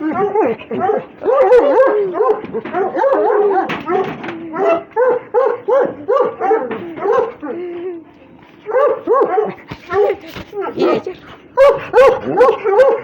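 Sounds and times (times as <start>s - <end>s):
hounds whining and yelping: 0.0s - 13.0s.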